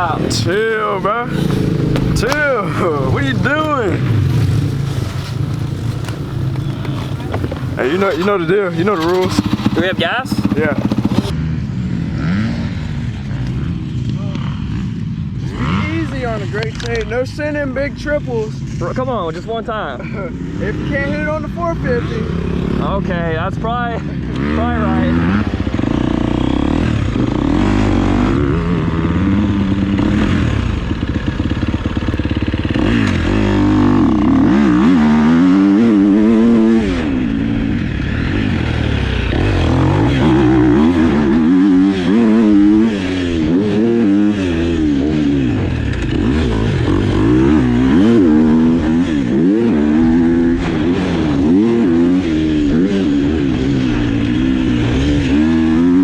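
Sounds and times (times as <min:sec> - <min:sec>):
dirt bike engine revving: 0:00.0 - 0:11.3, 0:24.4 - 0:56.0
clatter: 0:01.3 - 0:11.3.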